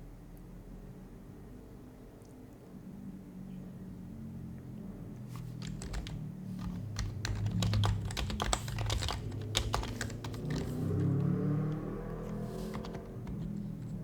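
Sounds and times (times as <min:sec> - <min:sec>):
keyboard typing: 0:05.4 - 0:14.0.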